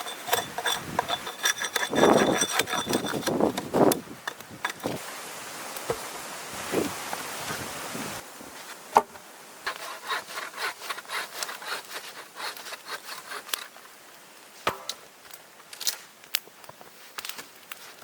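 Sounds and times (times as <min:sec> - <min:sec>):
hand saw cutting wood: 0:00.0 - 0:05.0, 0:09.7 - 0:13.7.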